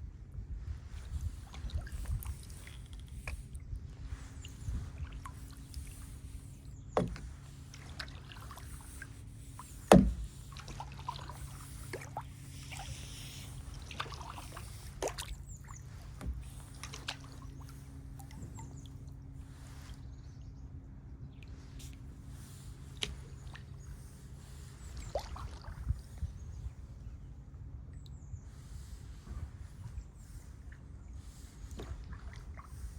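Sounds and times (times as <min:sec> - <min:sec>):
paddle splashing water: 0:00.8 - 0:20.0, 0:21.5 - 0:26.8, 0:28.5 - 0:32.9
sharp knocks on kayak: 0:07.0 - 0:07.4, 0:09.8 - 0:10.5.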